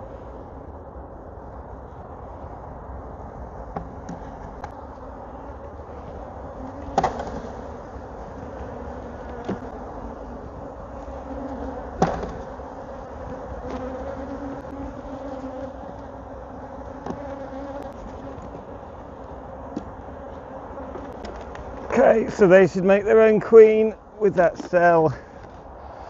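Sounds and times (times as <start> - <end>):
bees buzzing: 0.0 - 26.0.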